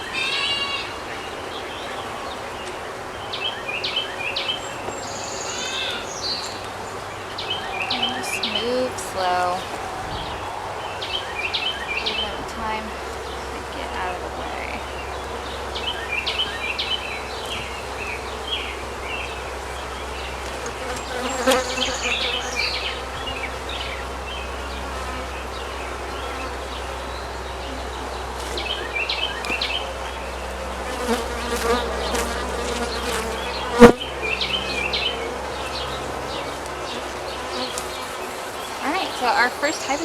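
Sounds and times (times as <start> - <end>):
bees buzzing: 4.1 - 40.0.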